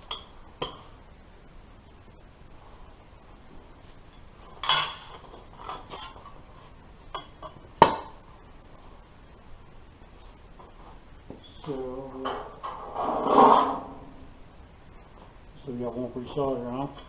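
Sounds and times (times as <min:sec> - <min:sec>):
sheet metal clanking: 0:12.2 - 0:14.0.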